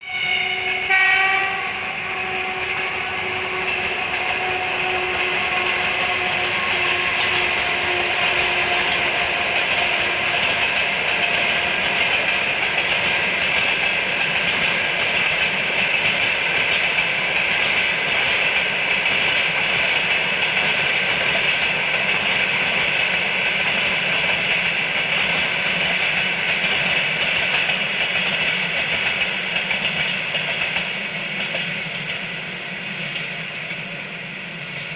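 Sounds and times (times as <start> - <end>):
train horn blast: 0.0 - 12.2
train wheels clickety-clack on rails: 0.0 - 34.9.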